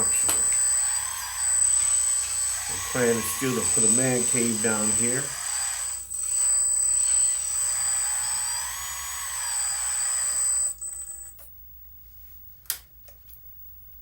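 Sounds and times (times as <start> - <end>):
electric motor and pump whining: 0.0 - 11.5
sharp click: 0.2 - 0.6.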